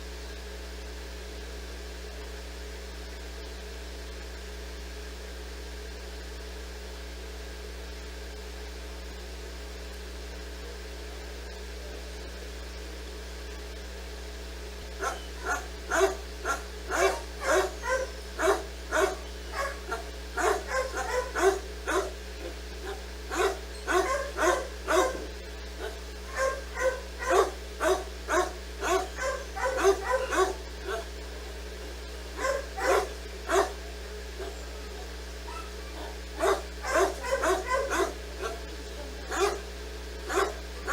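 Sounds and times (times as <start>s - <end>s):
dog barking: 14.9s - 40.9s.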